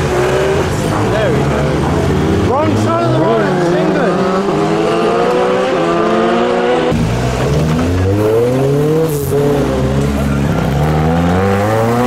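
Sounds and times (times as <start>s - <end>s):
car engines accelerating: 0.0s - 12.0s
engine revving: 0.0s - 12.0s.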